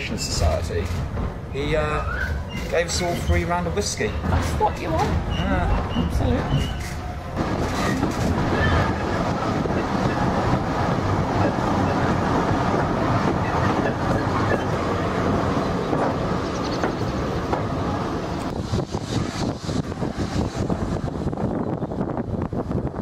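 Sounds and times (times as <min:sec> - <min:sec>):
train wheels on track: 0:00.0 - 0:23.0.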